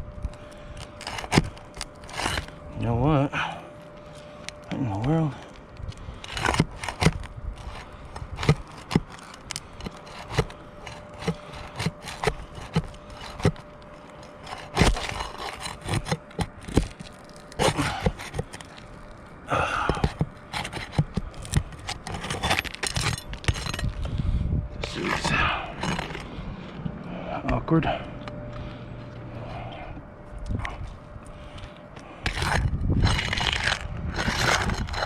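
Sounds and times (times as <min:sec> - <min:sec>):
tools scraping asphalt shingle: 0:00.4 - 0:24.2, 0:24.8 - 0:26.7, 0:30.6 - 0:35.0.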